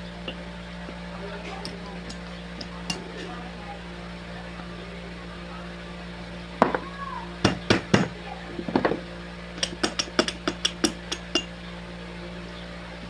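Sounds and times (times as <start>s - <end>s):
steady low hum: 0.0s - 13.0s
metal knocks and clinks: 1.5s - 3.4s, 6.6s - 6.9s, 7.5s - 11.5s.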